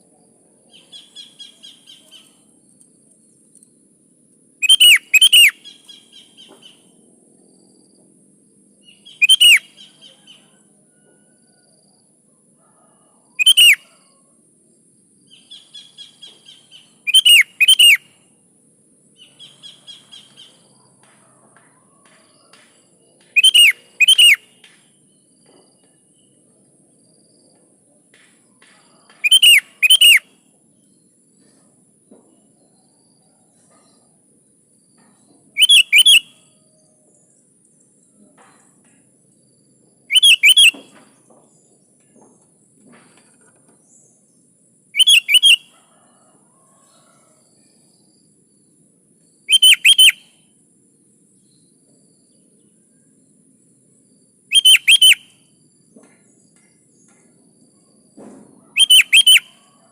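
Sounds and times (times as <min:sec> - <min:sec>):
bird calling whistled notes: 0:04.6 - 0:06.8, 0:08.9 - 0:10.5, 0:13.4 - 0:13.8, 0:15.5 - 0:18.1, 0:23.3 - 0:24.5, 0:29.2 - 0:30.3, 0:35.6 - 0:36.4, 0:40.1 - 0:41.0, 0:45.0 - 0:45.7, 0:49.5 - 0:50.4, 0:54.5 - 0:55.4, 0:58.7 - 0:59.6.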